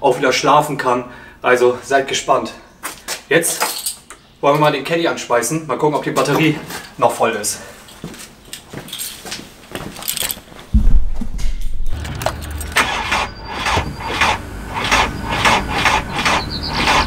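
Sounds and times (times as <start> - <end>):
diesel engine starting and idling: 11.9 - 17.0.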